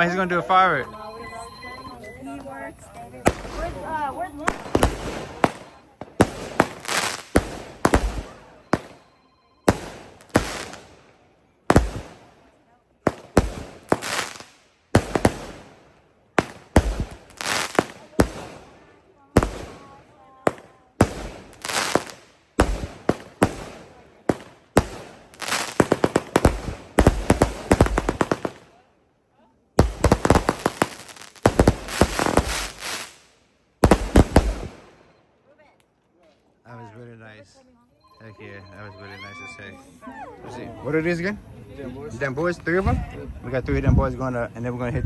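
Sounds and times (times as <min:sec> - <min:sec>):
fireworks bangs: 0:01.9 - 0:28.9, 0:29.8 - 0:35.2.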